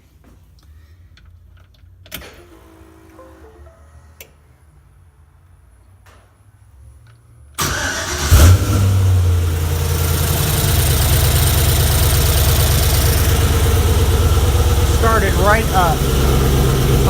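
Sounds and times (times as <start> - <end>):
engine cranking: 7.6 - 8.8, 9.8 - 17.0
engine revving and idling: 7.7 - 17.0.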